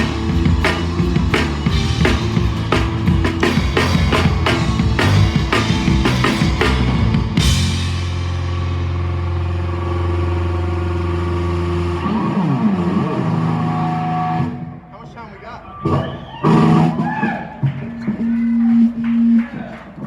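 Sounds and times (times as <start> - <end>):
bending guitar note: 0.0 - 8.8
live rock band playing: 0.0 - 9.1
drums pounding: 0.0 - 10.0, 14.4 - 20.0
cymbal crash: 0.0 - 10.2.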